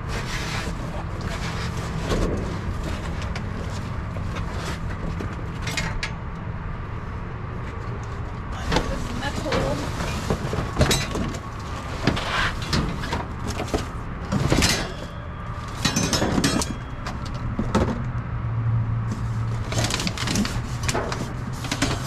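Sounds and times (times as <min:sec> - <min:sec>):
low steady rumble: 0:00.0 - 0:22.0
rustling and knocking: 0:08.2 - 0:18.1, 0:19.1 - 0:22.0.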